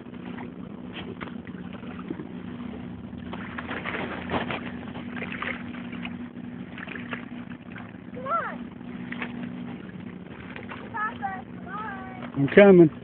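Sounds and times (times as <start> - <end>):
tugboat diesel engine droning: 0.0 - 13.0
rustling splashy noise: 3.2 - 6.2.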